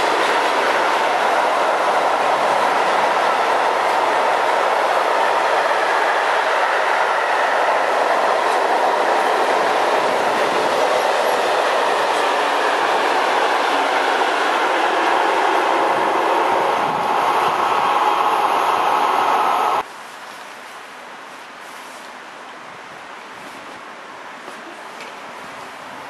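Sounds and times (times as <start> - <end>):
freight train wheels on rails: 0.0 - 19.9.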